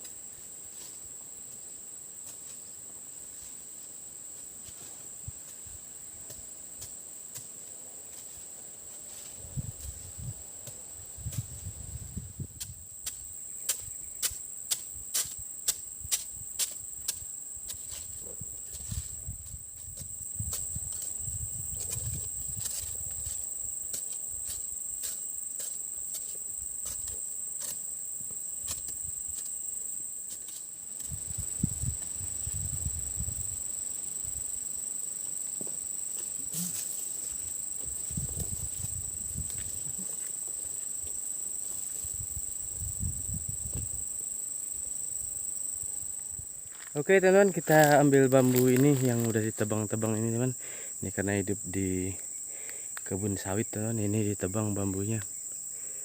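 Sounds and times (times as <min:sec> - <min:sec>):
insects droning: 0:00.0 - 0:56.0
rustling handling noise: 0:47.7 - 0:49.4.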